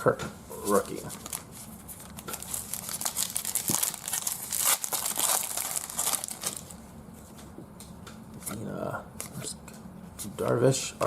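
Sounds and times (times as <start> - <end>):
plastic wrapper tearing and crinkling: 0.7 - 6.7.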